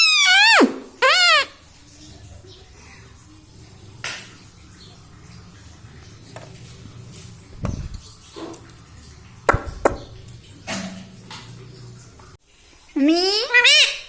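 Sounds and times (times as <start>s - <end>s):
low steady hum: 1.5s - 12.4s
dull thump: 9.5s - 10.2s
sharp taps: 9.5s - 10.2s.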